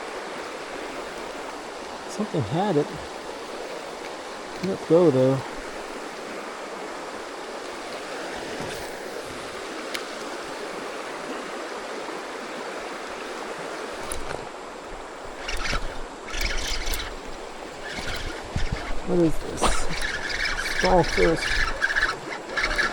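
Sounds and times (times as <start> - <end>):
creek water rushing over rocks: 0.0 - 22.9
short hissing bursts: 17.8 - 22.9.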